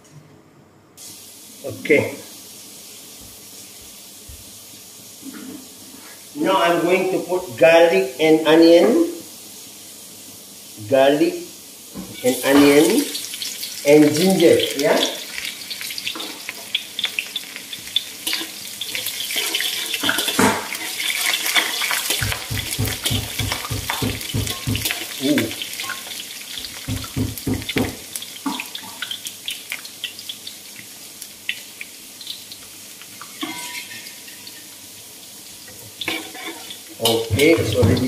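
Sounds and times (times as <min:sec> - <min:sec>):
food sizzling in oil: 0:01.0 - 0:38.0
metal spatula scraping a pan: 0:19.2 - 0:22.5, 0:33.3 - 0:34.5, 0:36.0 - 0:37.8.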